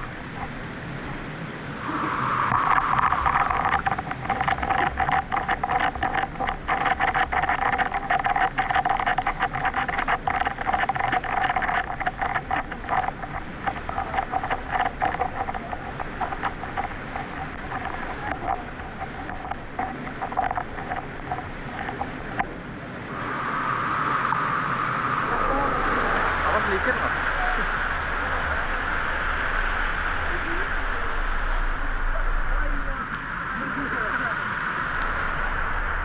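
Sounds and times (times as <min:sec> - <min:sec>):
small water splashes: 0:01.9 - 0:23.2.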